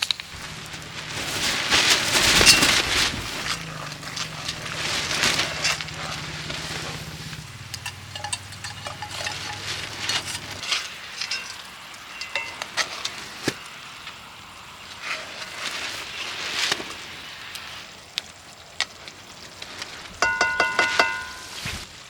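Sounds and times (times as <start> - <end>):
low steady hum: 2.3 - 12.8
utensil clinking against pan: 7.6 - 13.2, 20.2 - 21.7.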